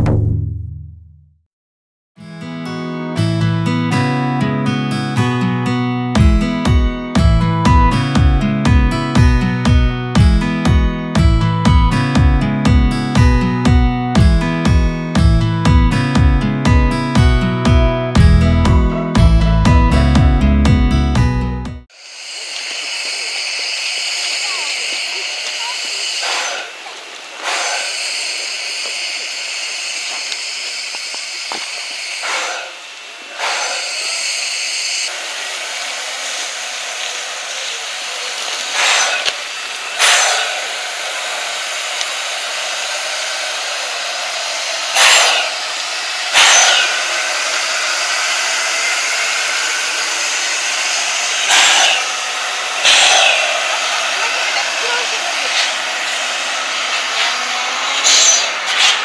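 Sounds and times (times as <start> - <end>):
short steam bursts: 21.9 - 59.0
steam train rushing hiss: 21.9 - 59.0.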